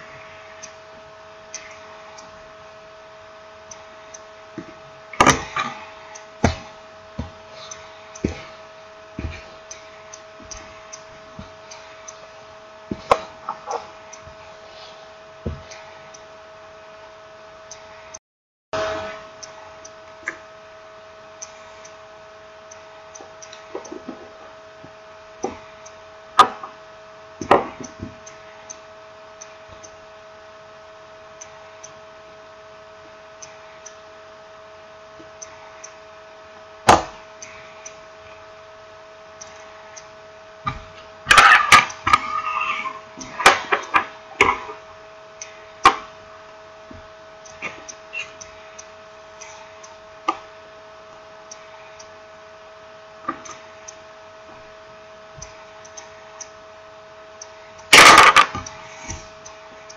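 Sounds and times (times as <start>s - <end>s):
faint regular ticking: 0.0s - 16.4s, 17.6s - 17.9s, 21.2s - 41.2s, 43.3s - 59.9s
steady hum: 0.0s - 18.2s, 18.8s - 59.9s.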